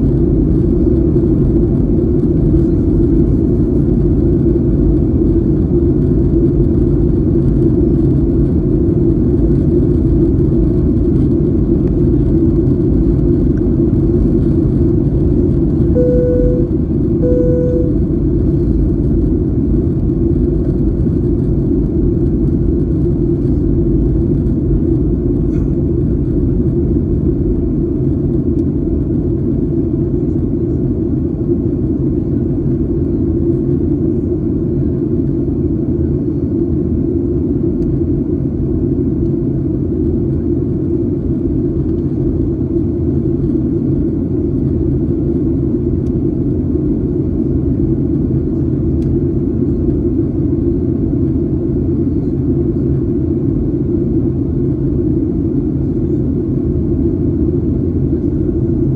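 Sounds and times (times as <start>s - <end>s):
jet airliner cabin rumble: 0.0s - 58.9s.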